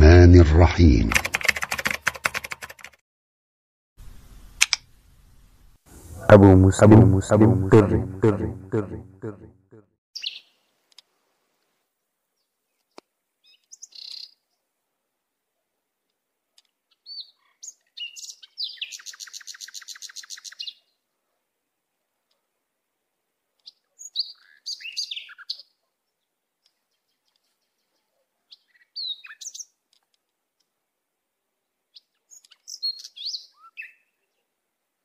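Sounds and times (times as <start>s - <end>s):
songbird chirps and whistles: 24.0s - 25.6s, 32.3s - 34.2s.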